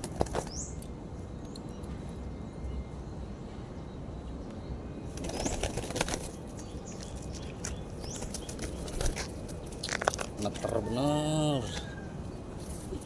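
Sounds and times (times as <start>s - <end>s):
pigeon wings flapping: 5.1s - 6.7s, 8.0s - 10.7s.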